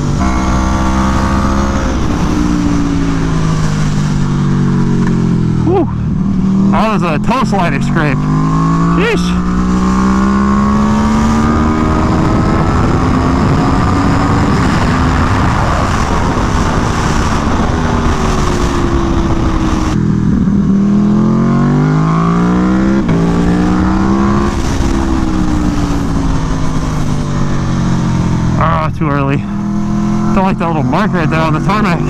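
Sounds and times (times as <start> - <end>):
wind rush: 0.0 - 6.7, 8.2 - 20.8
motorcycle engine revving: 0.0 - 32.0.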